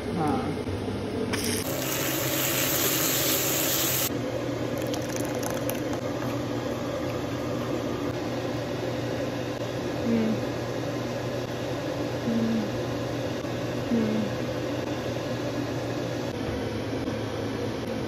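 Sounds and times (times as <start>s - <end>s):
onion sizzling in hot fat: 1.3s - 4.1s.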